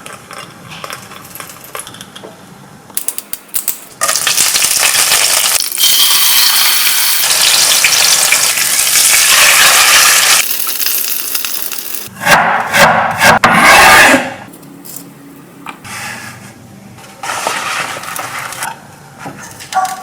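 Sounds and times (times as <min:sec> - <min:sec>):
food sizzling in a pan: 0:04.1 - 0:11.8.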